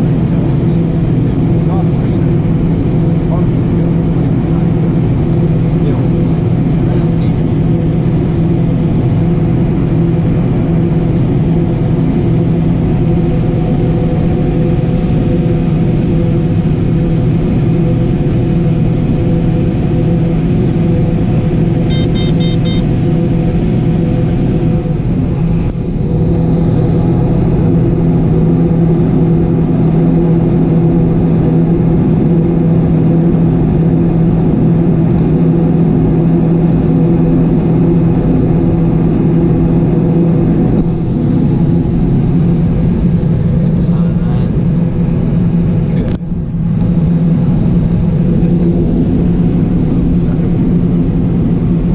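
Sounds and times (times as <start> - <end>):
combine harvester drone: 0.0 - 51.9
rapid electronic beeps: 21.9 - 22.9.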